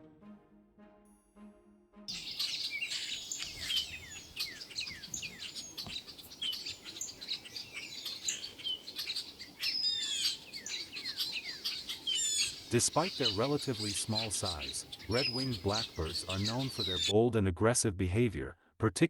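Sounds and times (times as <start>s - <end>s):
flock of blackbirds calling: 2.1s - 17.1s.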